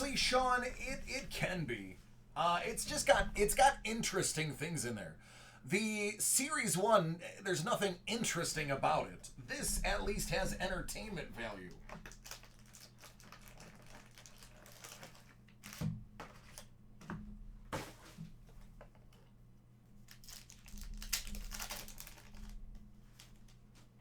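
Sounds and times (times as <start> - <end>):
low electrical hum: 0.0 - 24.0
foil wrappers crinkling and tearing: 11.4 - 16.7, 20.0 - 23.6.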